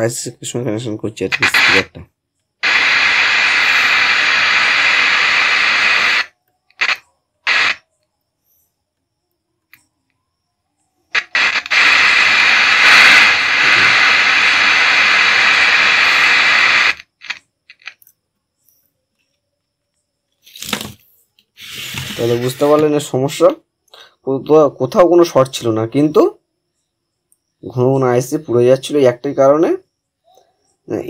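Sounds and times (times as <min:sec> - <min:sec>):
radio static hiss: 0:00.0 - 0:07.8, 0:11.1 - 0:18.0, 0:21.6 - 0:24.1
loudspeaker crackles: 0:11.2 - 0:17.9.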